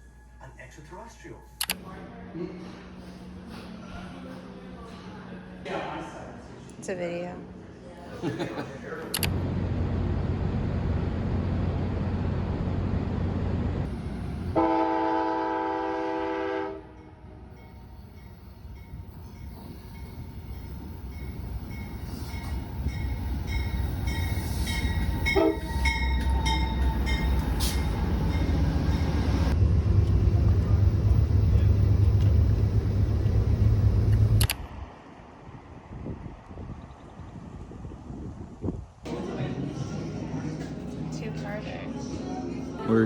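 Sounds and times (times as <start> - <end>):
train rumbling: 6.0 - 43.0
train horn blast: 14.5 - 17.2, 25.2 - 27.8.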